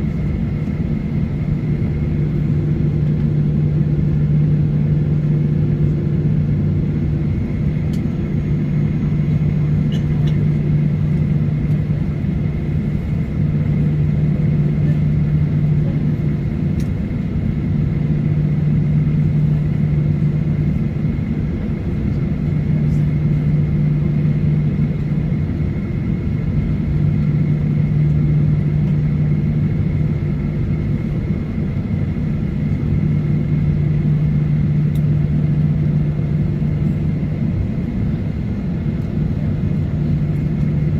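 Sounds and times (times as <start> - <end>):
airplane cabin drone: 0.0 - 40.9.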